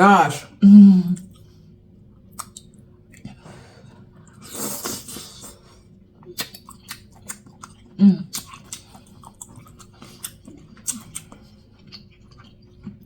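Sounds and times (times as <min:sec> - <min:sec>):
wet chewing and lip smacking: 0:02.2 - 0:03.4, 0:06.2 - 0:13.0.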